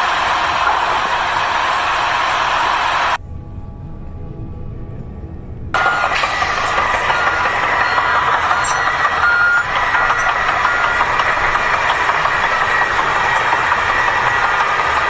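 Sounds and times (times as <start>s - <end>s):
heavy vehicle running: 0.0s - 15.0s
short high beeps: 5.8s - 12.9s.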